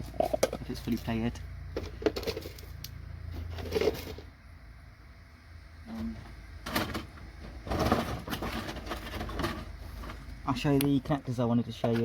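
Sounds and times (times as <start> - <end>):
small parts knocking and rustling: 0.0 - 4.4, 6.2 - 10.4
low steady hum: 0.0 - 12.0.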